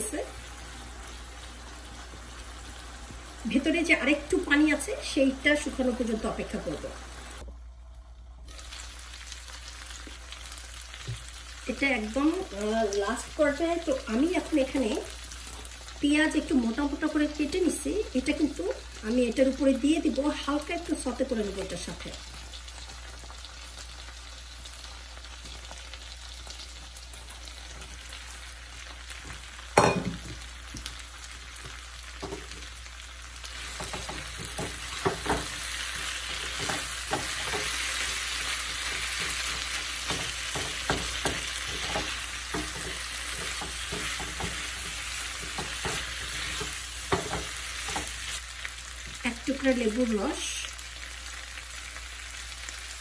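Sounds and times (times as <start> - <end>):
meat sizzling in a frying pan: 0.0 - 7.5, 8.4 - 53.0
spatula scraping a pan: 33.6 - 48.4.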